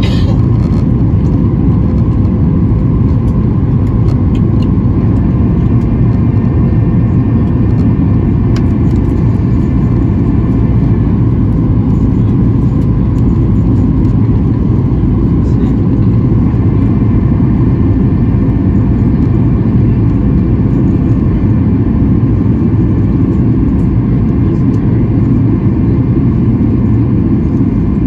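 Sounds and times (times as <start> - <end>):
faint engine whine: 0.0 - 28.0
jet engine rumble in cabin: 0.0 - 28.0.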